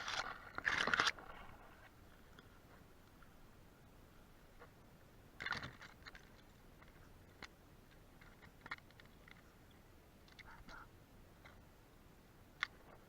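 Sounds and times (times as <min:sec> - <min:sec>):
crunching rustle: 0:00.0 - 0:03.3.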